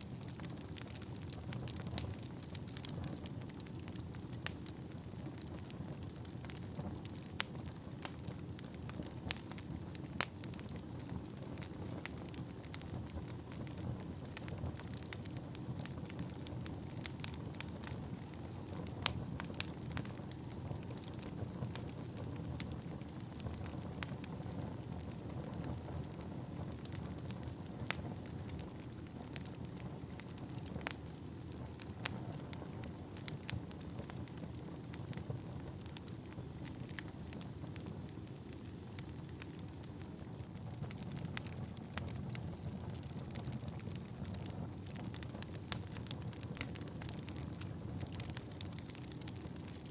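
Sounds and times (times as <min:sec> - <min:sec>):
logs crackling and popping: 0:00.0 - 0:49.9
flames rushing: 0:00.2 - 0:35.2, 0:39.4 - 0:49.8
faint high whistle falling in pitch: 0:34.9 - 0:40.4.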